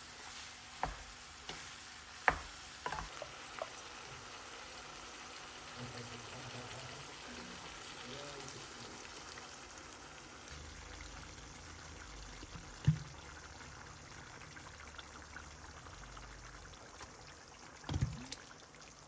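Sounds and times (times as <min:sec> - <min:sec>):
faint trickling water: 0:10.5 - 0:19.0.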